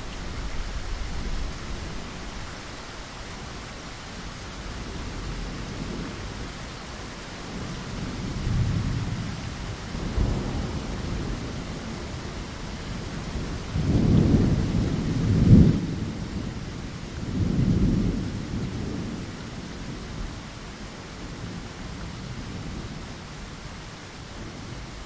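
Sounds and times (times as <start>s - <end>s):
steady rain: 0.0s - 25.0s
rolling thunder: 7.5s - 20.3s.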